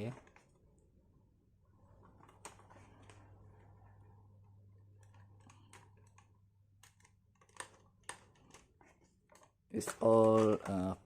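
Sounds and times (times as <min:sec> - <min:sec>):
plastic toy truck clicks: 0:09.8 - 0:11.0.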